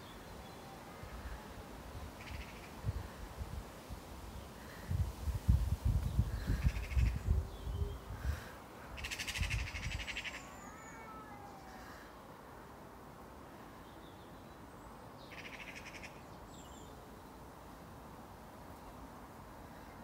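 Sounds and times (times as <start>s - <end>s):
faint bird chirps: 0.0s - 3.0s.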